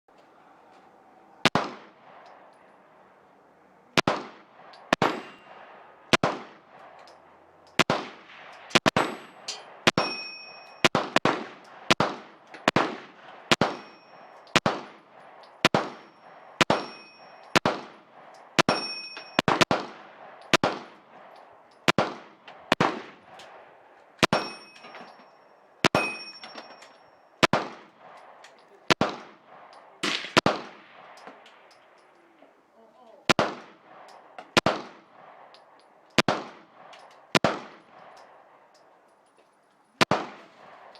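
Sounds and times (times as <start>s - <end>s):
pistol shots echoing: 1.4s - 2.6s, 4.0s - 32.2s, 33.2s - 39.2s, 40.0s - 40.9s
high metallic ring: 5.1s - 5.6s, 9.1s - 10.9s, 13.7s - 14.4s, 16.0s - 17.6s, 18.6s - 19.5s, 24.3s - 27.4s.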